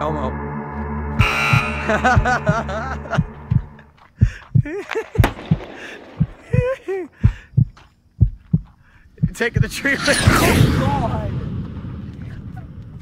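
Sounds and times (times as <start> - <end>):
heartbeat thumps: 1.2 - 9.8.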